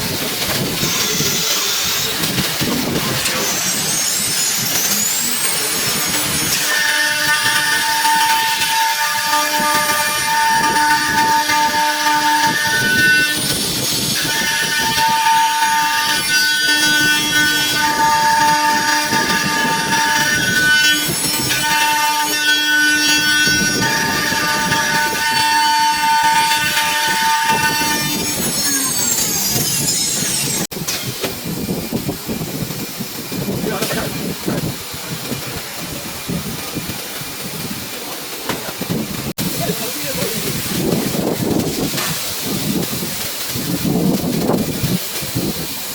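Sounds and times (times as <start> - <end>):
router spindle whine: 14.2 - 30.7.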